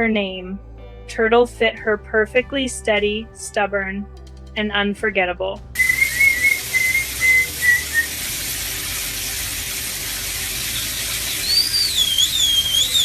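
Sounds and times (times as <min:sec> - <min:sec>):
parrot whistling: 0:05.8 - 0:08.6, 0:10.0 - 0:13.0
steady hiss: 0:05.8 - 0:13.0.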